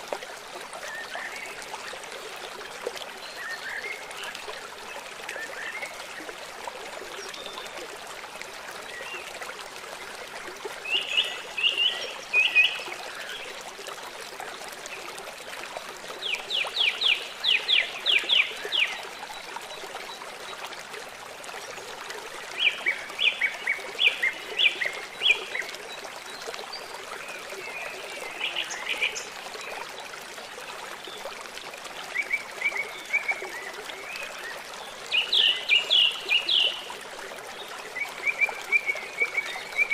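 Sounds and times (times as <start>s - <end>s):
running water: 0.0s - 39.9s
songbird singing: 34.4s - 36.9s.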